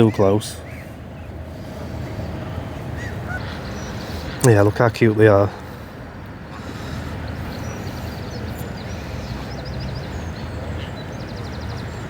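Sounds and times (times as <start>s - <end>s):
bird chirps: 2.0s - 4.7s, 6.5s - 12.0s.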